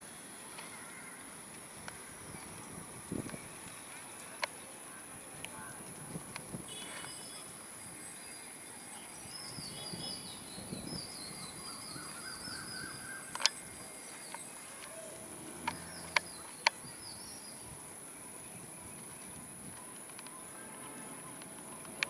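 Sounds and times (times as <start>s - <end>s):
small birds chirping: 1.9s - 22.0s
sharp clicks: 13.2s - 13.6s, 15.5s - 16.8s.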